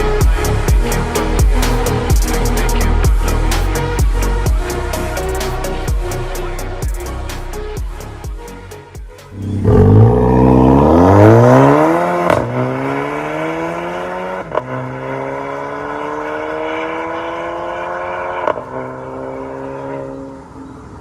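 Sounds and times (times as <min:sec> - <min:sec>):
car engine accelerating hard: 0:09.3 - 0:20.8.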